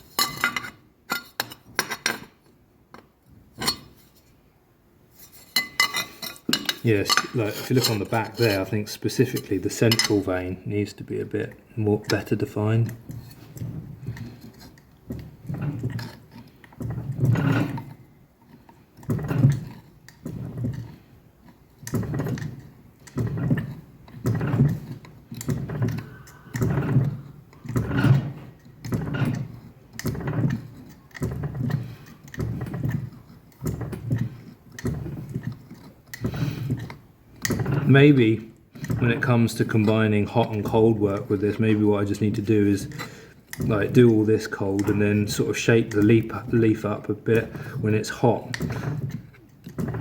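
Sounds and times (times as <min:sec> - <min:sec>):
fly press dull metallic thumps: 0:12.0 - 0:50.0.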